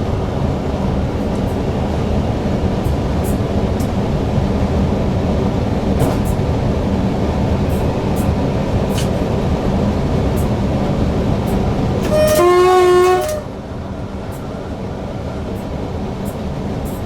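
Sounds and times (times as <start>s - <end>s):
electric train running: 0.0s - 17.0s
train horn: 12.0s - 13.7s.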